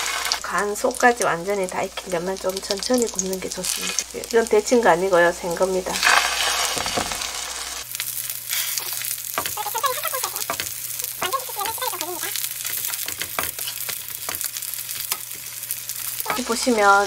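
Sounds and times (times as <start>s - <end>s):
food sizzling and spitting in oil: 0.0s - 17.0s
wooden spatula shifting food: 8.8s - 15.5s.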